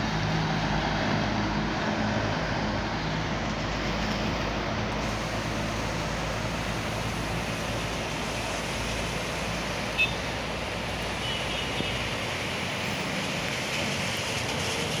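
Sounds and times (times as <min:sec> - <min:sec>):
distant traffic rumble: 0:00.0 - 0:15.0
steady rain hiss: 0:02.3 - 0:15.0.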